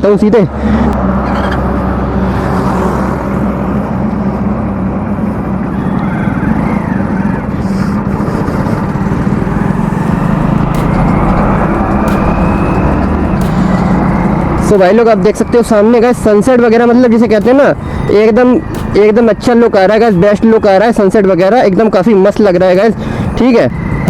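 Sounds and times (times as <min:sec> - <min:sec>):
road and wind noise: 0:00.0 - 0:24.0
motorcycle engine running: 0:03.7 - 0:19.6.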